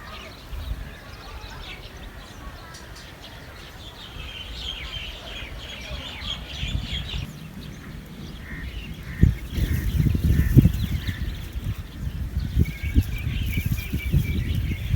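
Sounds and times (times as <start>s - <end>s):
small birds chirping: 0.0s - 14.9s.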